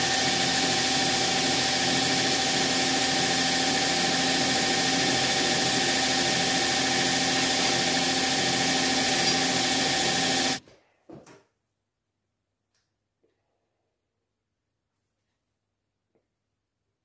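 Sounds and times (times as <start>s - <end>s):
machine running with hum: 0.0s - 10.6s.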